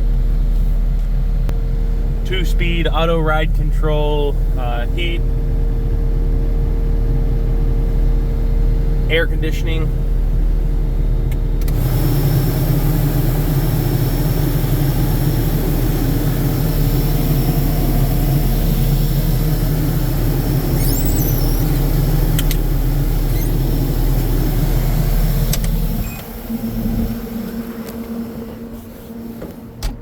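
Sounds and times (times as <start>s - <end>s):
diesel engine running: 0.0s - 30.0s
high squeaks: 20.6s - 22.0s, 23.2s - 23.8s.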